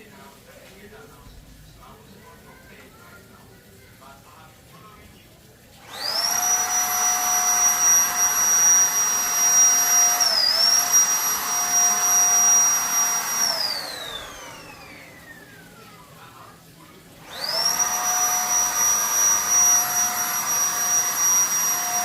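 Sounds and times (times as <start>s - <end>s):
spray gun motor whining: 5.8s - 15.8s, 17.2s - 22.0s.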